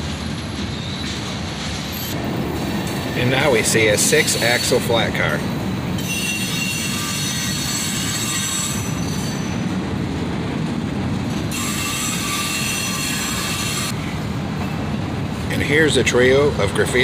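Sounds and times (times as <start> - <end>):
freight cars rumbling: 0.0 - 6.6, 8.6 - 17.0
steel wheels squealing: 0.4 - 2.2, 2.9 - 9.8, 11.5 - 14.1.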